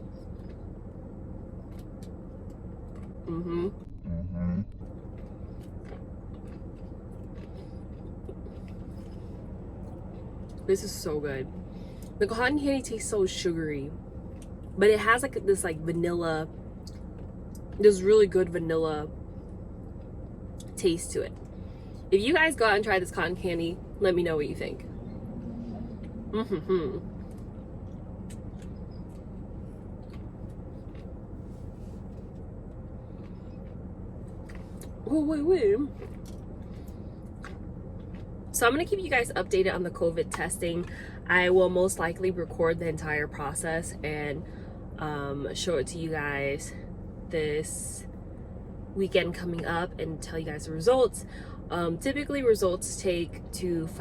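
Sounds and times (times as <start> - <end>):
low hum: 0.0 - 54.0
chewing: 1.5 - 3.9, 4.8 - 10.7, 14.2 - 14.7, 25.4 - 35.0, 35.9 - 38.5.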